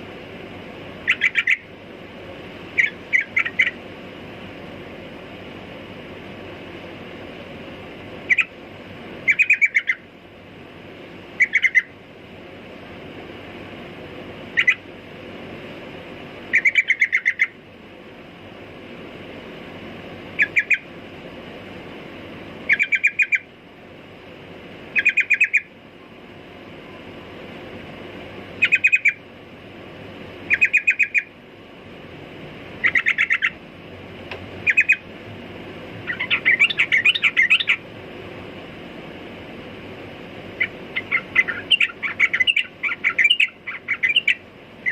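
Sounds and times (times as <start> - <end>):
steady background hiss: 0.0 - 44.9
bird calling in repeated notes: 1.0 - 1.7, 2.7 - 3.8, 8.2 - 8.6, 9.2 - 10.1, 11.3 - 12.0, 14.5 - 14.9, 16.5 - 17.6, 20.4 - 20.9, 22.6 - 23.5, 24.9 - 25.8, 28.6 - 29.2, 30.4 - 31.4, 32.8 - 33.6, 34.6 - 35.1, 36.0 - 37.9, 40.5 - 44.9.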